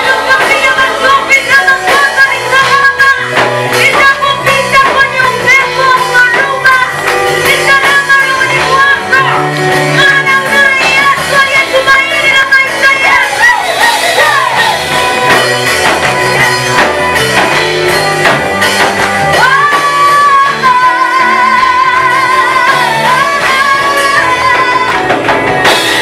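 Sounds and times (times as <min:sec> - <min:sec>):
group singing worship song: 0:00.0 - 0:11.8, 0:19.3 - 0:26.0
band accompaniment: 0:00.0 - 0:26.0.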